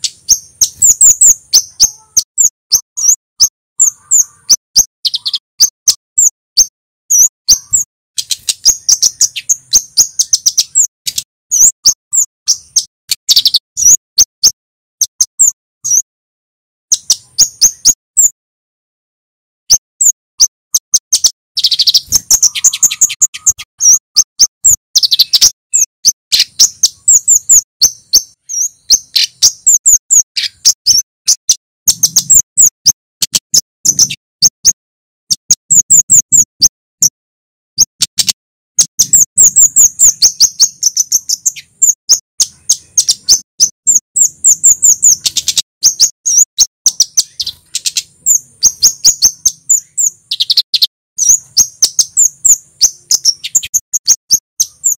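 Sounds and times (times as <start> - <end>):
bird chip notes: 0.0 - 14.0, 20.8 - 31.0.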